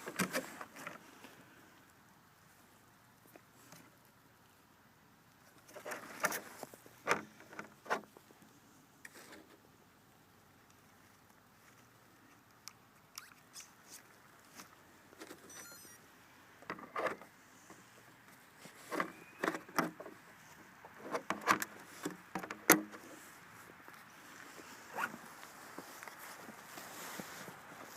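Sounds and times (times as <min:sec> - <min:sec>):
crunching in snow: 0:23.1 - 0:27.9.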